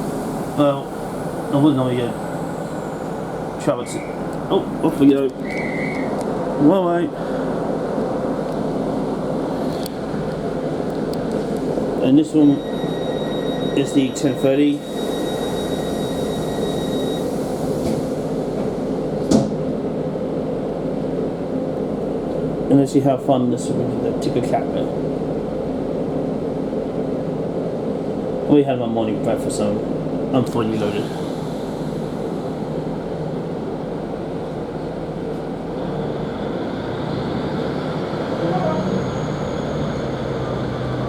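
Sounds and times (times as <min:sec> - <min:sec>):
diesel engine rumble: 0:00.0 - 0:12.6, 0:29.9 - 0:41.0
train wheels on rail: 0:07.2 - 0:19.7
faint high whine: 0:12.0 - 0:17.8.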